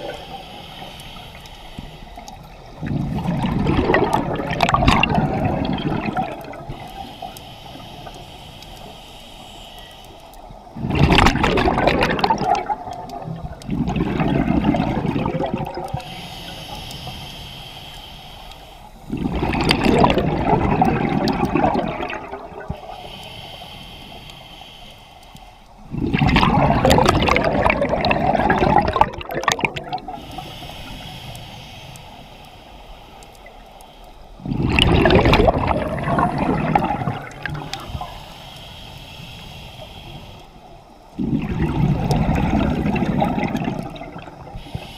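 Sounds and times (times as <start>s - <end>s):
regulator breathing hiss: 0.0s - 2.9s, 6.3s - 10.8s, 15.9s - 19.2s, 22.4s - 25.9s, 30.0s - 34.6s, 36.8s - 41.2s, 44.3s - 44.9s
exhaust bubbles rushing: 2.8s - 6.6s, 10.8s - 16.0s, 19.1s - 22.7s, 25.9s - 30.1s, 34.4s - 37.7s, 41.2s - 44.4s.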